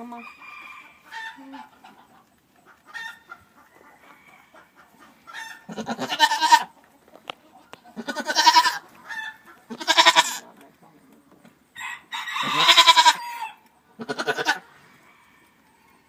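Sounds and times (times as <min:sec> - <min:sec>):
goats bleating: 0:05.6 - 0:06.8, 0:07.9 - 0:08.9, 0:09.6 - 0:10.4, 0:12.4 - 0:13.3, 0:14.0 - 0:14.7.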